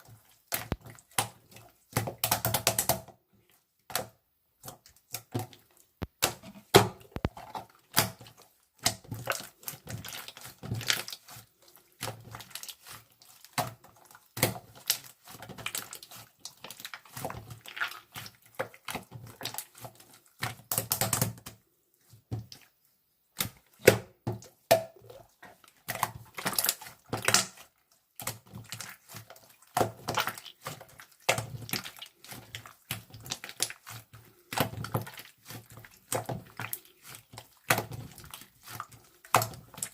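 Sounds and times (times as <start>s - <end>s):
small objects clicking and tapping: 0.6s - 1.4s, 3.9s - 8.2s.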